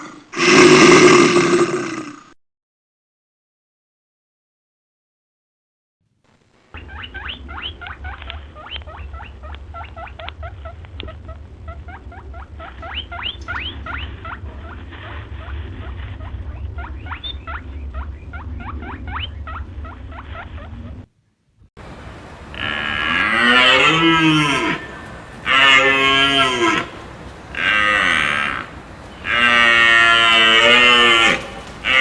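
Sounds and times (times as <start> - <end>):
low steady hum: 6.3 - 21.1, 21.8 - 32.0
rodent squeaking: 6.8 - 21.1.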